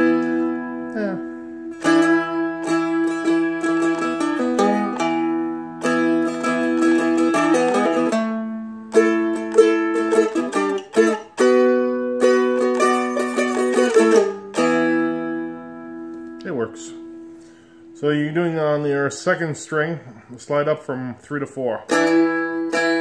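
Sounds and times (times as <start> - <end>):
dulcimer picked melody with drone: 0.0 - 1.1, 1.7 - 16.2, 21.9 - 23.0.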